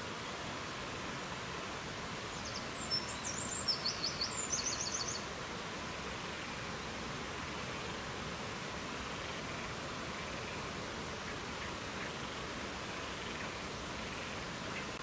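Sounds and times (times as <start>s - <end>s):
songbird singing: 2.2s - 5.3s.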